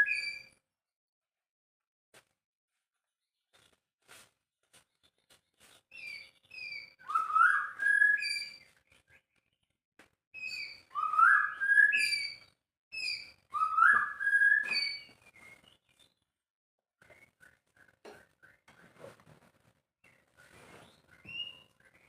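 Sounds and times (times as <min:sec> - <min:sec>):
bird singing whistled notes: 0:00.0 - 0:00.5, 0:05.9 - 0:08.8, 0:10.4 - 0:16.2, 0:20.1 - 0:22.0.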